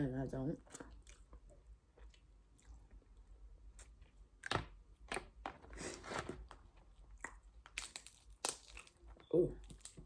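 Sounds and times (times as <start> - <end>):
crab shell cracking: 7.2 - 9.0.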